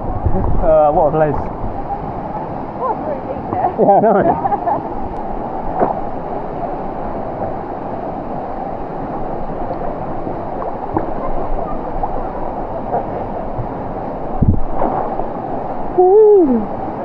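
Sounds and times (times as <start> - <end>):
waterfall rushing: 0.0 - 17.0
low thump: 14.4 - 15.2.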